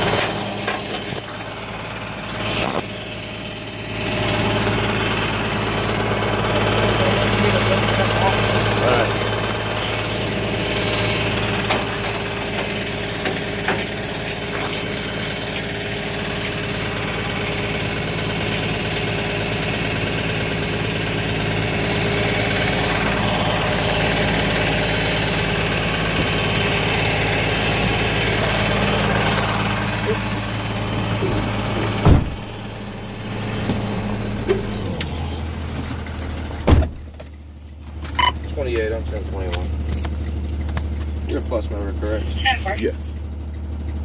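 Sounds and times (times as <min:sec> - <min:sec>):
vehicle engine idling: 0:00.0 - 0:44.0.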